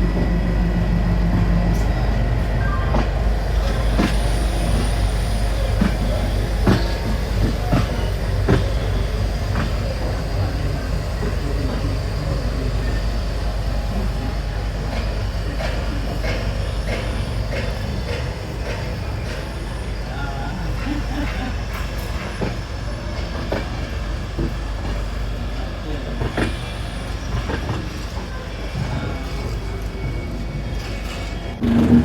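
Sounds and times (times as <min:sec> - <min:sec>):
train rumbling on track: 0:00.0 - 0:32.0
wheels clacking over rail joints: 0:12.6 - 0:20.1.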